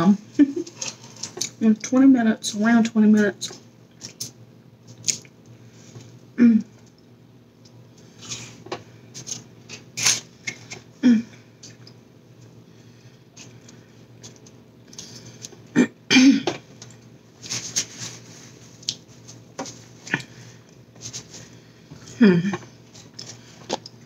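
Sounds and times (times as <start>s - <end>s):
person chewing: 4.0s - 5.4s, 18.8s - 19.1s
mouth or throat noises: 22.1s - 22.7s.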